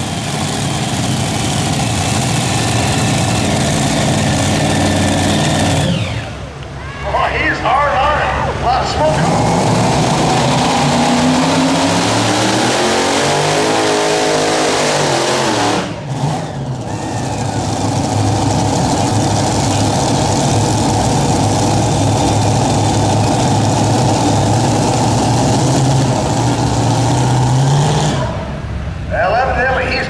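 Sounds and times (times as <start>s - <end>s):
tractor engine at full throttle: 0.0s - 30.0s.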